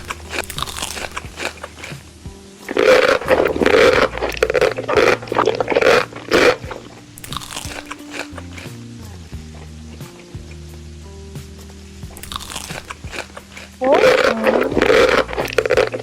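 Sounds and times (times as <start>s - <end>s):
crunching and chewing crispy food: 0.0s - 10.9s, 12.0s - 16.0s
background music with held notes: 0.0s - 16.0s.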